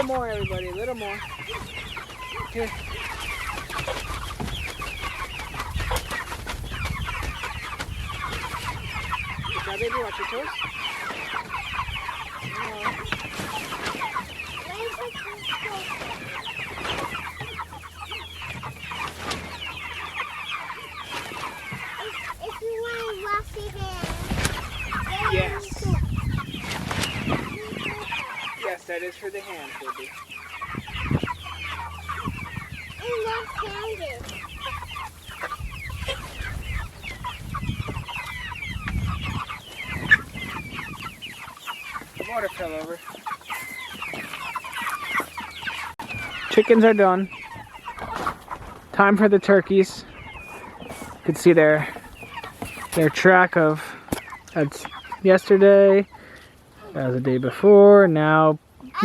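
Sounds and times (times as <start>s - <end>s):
chickens peeping and clucking: 0.0s - 59.0s.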